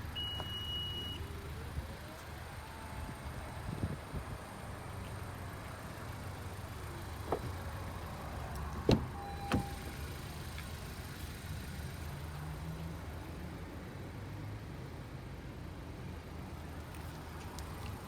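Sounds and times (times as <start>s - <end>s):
car running hum: 0.0s - 13.7s
brief beep tone: 0.2s - 1.2s, 9.2s - 9.9s.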